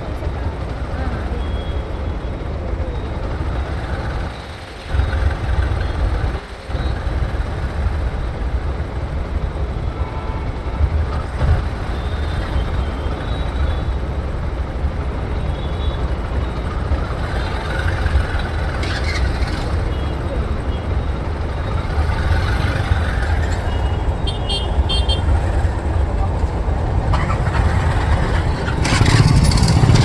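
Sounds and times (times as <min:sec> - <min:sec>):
motorcycle engine: 0:00.0 - 0:30.0
traffic: 0:00.0 - 0:30.0.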